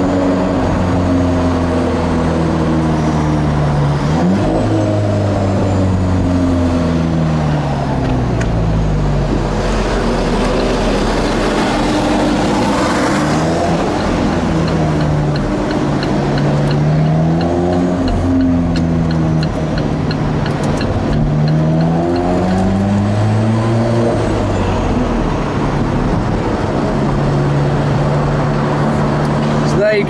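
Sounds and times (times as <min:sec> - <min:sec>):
car engine revving: 0:00.0 - 0:30.0
light regular ticking: 0:13.9 - 0:22.6.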